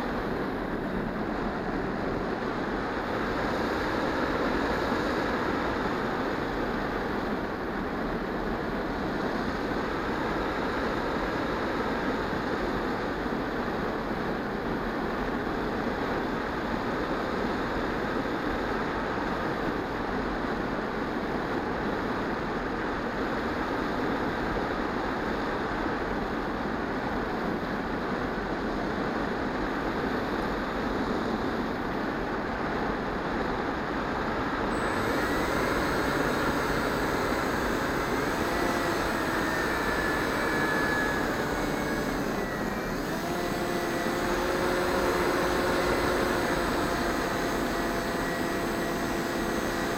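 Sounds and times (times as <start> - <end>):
model plane motor and propeller: 0.0 - 49.9
thin whining tones: 34.7 - 49.9.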